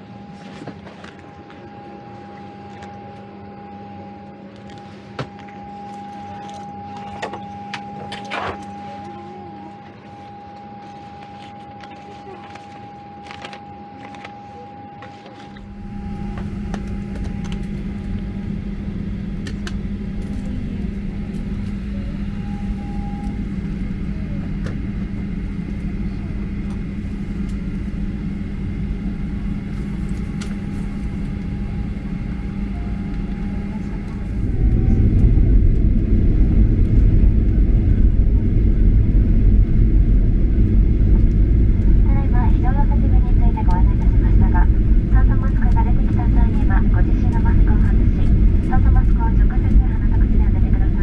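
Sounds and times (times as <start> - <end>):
airliner cabin hum with whine: 0.0 - 51.0
jet engines deep rumble: 15.6 - 51.0.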